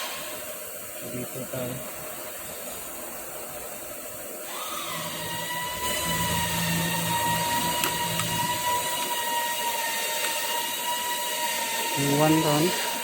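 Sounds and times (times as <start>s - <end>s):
electric motor whining: 4.4s - 13.0s.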